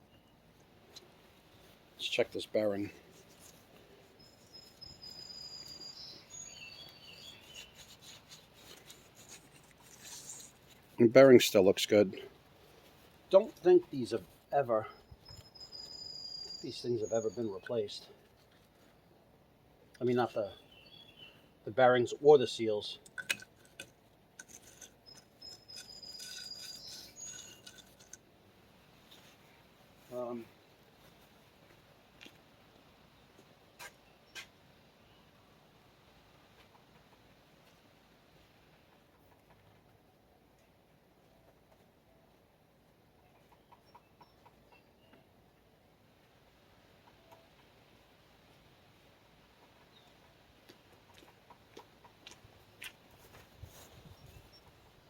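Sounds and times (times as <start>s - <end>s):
wheel bearing rubbing and clicking: 23.1s - 28.3s.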